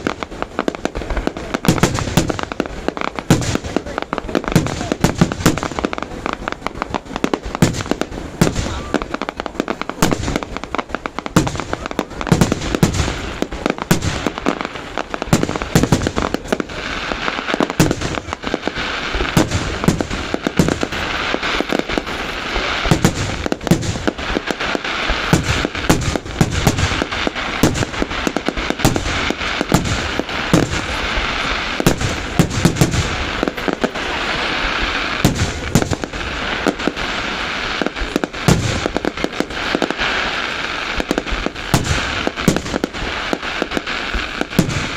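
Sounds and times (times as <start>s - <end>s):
fireworks bursting: 0.0s - 44.9s
fireworks crackling: 0.0s - 44.9s.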